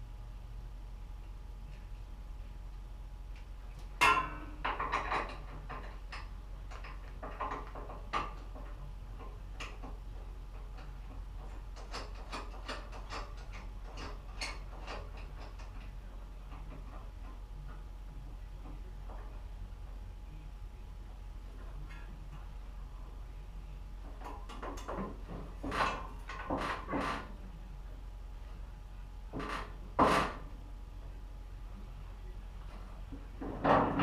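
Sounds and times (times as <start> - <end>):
steady low hum: 0.0 - 34.0
sharp metal clank: 4.0 - 4.6
knocks: 29.3 - 30.4.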